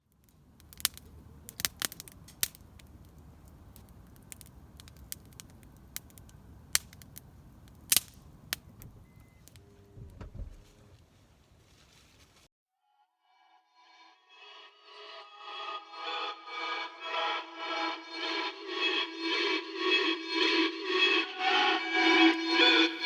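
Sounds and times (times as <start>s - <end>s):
campfire crackling: 0.0s - 9.6s.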